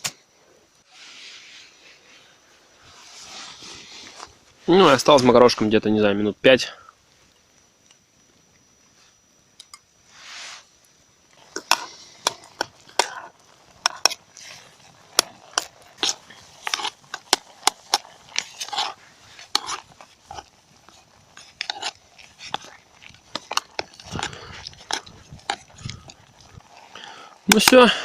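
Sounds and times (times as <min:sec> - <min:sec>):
spoon scraping pot: 0:11.4 - 0:27.1.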